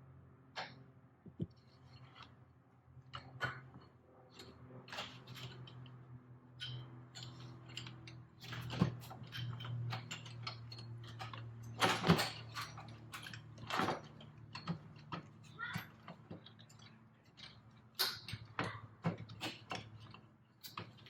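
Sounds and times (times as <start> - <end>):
metal tools clinking and knocking: 6.6 - 21.0.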